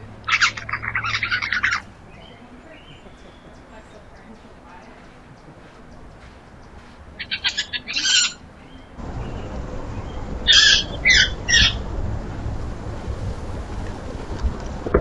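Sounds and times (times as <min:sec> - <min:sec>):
harsh bird calls: 0:00.1 - 0:03.7, 0:07.2 - 0:15.0
wind rumble on microphone: 0:09.0 - 0:15.0.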